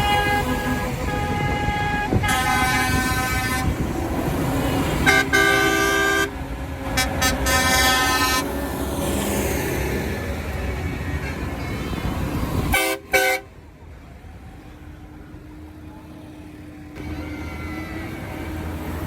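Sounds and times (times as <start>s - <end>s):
tractor horns tooting: 0.0s - 4.1s, 4.7s - 8.6s, 10.8s - 13.6s
engines rumbling: 0.0s - 19.0s.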